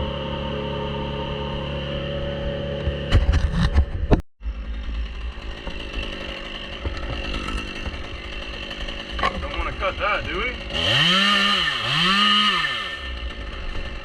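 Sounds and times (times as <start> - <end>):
chainsaw running: 0.0 - 3.7, 4.4 - 14.0
loud knocks and clatter: 5.5 - 9.6.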